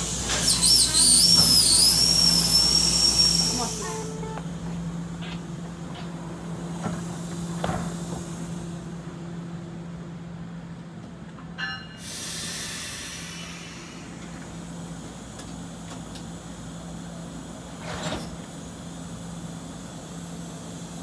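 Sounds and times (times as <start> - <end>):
air brakes hissing: 0.0 - 4.4, 11.9 - 15.8
train humming: 0.0 - 21.0
brake squeal: 0.3 - 4.3.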